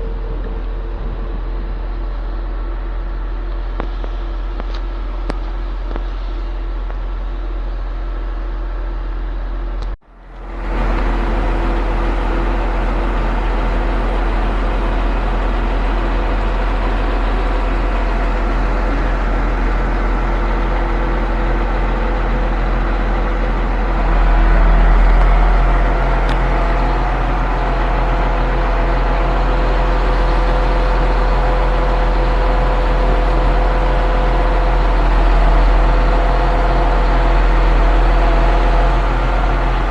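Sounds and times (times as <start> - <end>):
truck engine running under load: 0.0 - 39.9.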